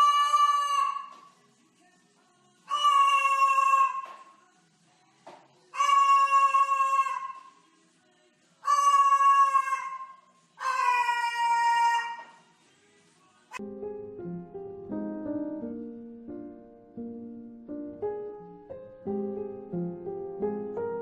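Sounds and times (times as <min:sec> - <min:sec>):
bird giving long pitched calls: 0:00.0 - 0:01.1, 0:02.7 - 0:04.1, 0:05.8 - 0:07.5, 0:08.6 - 0:12.3.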